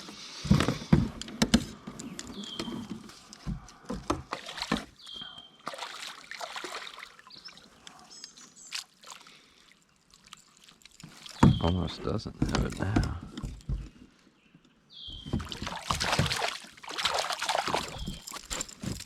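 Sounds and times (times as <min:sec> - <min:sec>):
light water splashing: 0:04.3 - 0:05.0, 0:05.6 - 0:13.6, 0:15.2 - 0:19.0.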